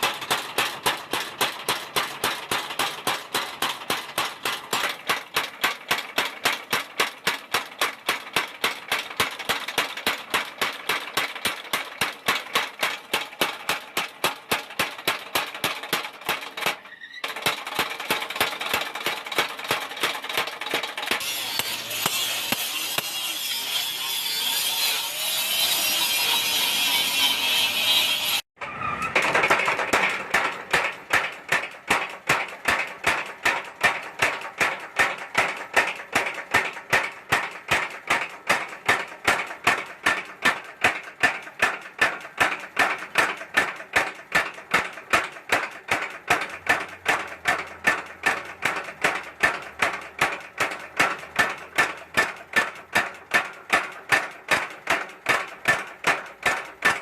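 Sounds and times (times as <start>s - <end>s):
hammer blows on hot steel: 21.1s - 28.4s.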